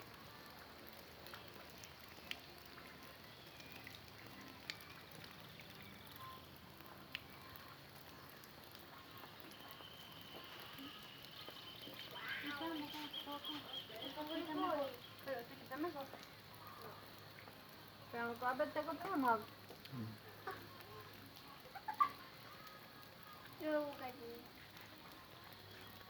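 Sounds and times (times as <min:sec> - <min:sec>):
faint background hiss: 0:00.0 - 0:26.0
faint whistle-like tones: 0:01.3 - 0:15.9, 0:22.4 - 0:26.0.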